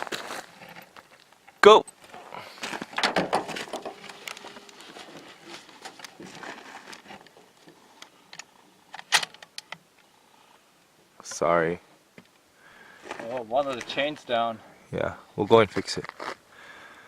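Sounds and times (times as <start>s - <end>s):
clothing rustling: 2.5s - 8.0s.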